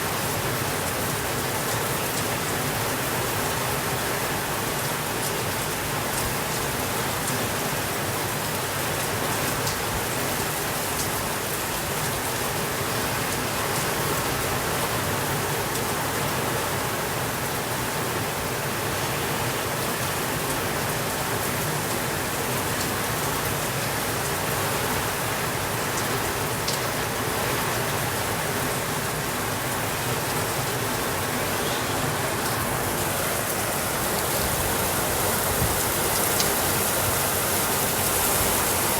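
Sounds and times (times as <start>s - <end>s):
rain hissing: 19.6s - 38.9s
raindrop ticks: 36.1s - 36.7s.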